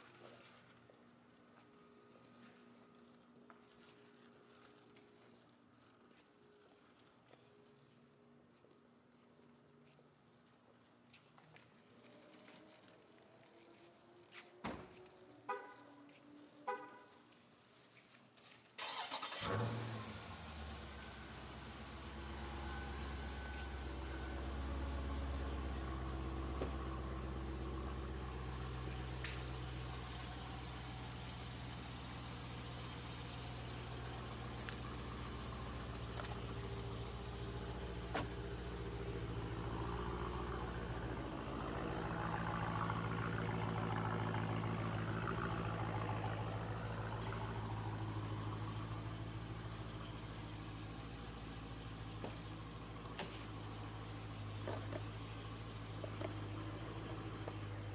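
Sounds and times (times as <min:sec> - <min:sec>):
car engine running steadily: 0:18.8 - 0:57.9.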